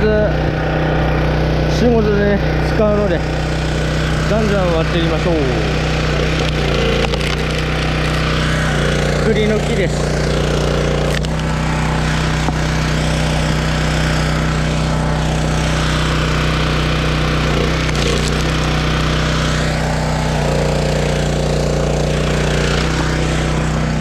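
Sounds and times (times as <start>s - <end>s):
log splitter engine running: 0.0s - 24.0s
wood splitting cracks: 6.2s - 9.2s, 10.1s - 11.5s, 17.4s - 18.8s.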